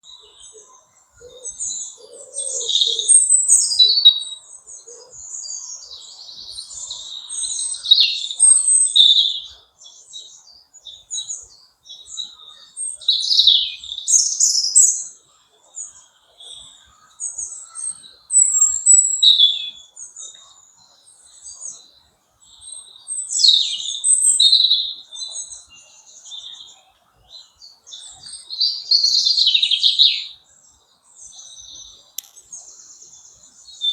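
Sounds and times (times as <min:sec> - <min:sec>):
lower bird calls: 0:00.0 - 0:30.4
songbirds singing and chirping: 0:00.0 - 0:33.9.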